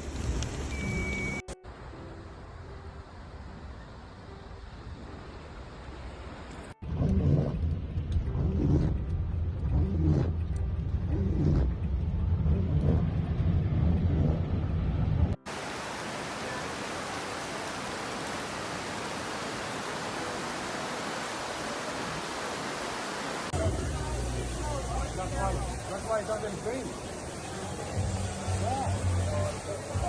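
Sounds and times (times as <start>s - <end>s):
low rumbling noise: 6.8s - 16.4s
pouring water hiss: 15.5s - 23.6s.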